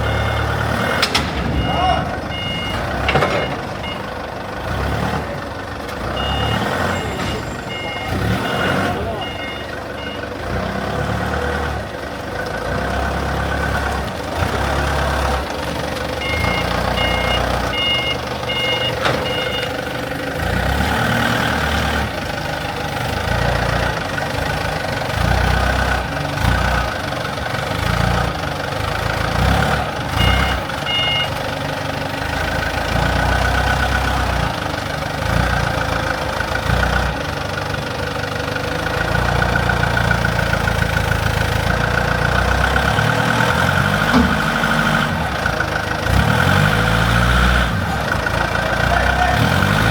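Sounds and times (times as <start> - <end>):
two-tone travel alarm beeping: 0.0 - 0.7, 1.5 - 4.2, 6.2 - 10.3, 16.1 - 19.8, 30.2 - 31.4
diesel engine running: 0.0 - 49.9.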